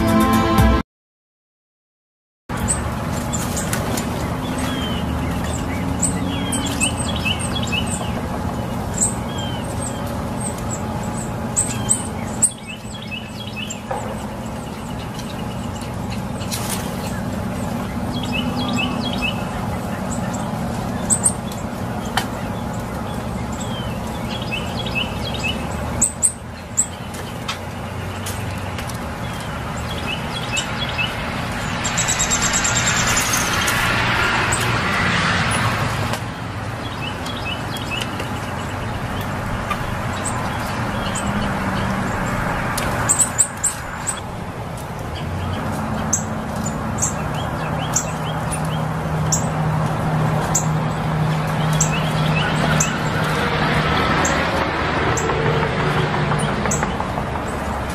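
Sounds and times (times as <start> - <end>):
small birds chirping: 2.5 - 34.8, 35.5 - 57.9
outdoor background hum: 2.5 - 57.9
rushing sound: 31.2 - 36.1.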